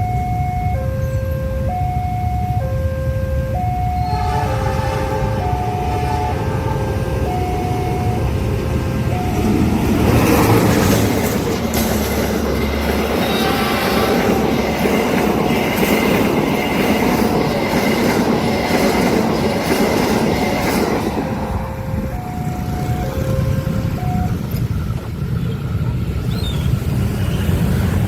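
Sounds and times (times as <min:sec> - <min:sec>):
two-tone crossing signal: 0:00.0 - 0:11.4, 0:12.8 - 0:25.7
train wheels clattering: 0:08.7 - 0:28.0.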